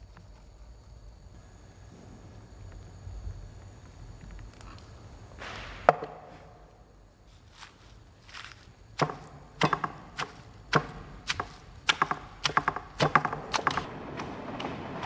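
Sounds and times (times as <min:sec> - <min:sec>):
knife chopping on wooden board: 0:05.9 - 0:06.3, 0:09.0 - 0:15.0.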